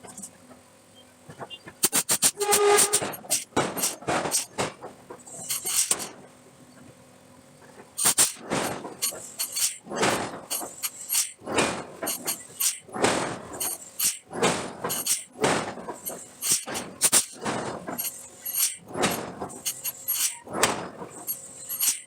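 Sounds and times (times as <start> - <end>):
metal-on-metal forging clanks: 8.0 - 22.0.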